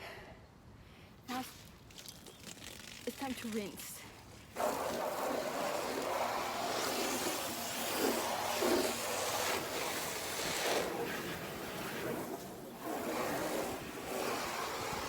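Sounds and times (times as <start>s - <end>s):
hose water spraying on car: 2.0s - 15.0s.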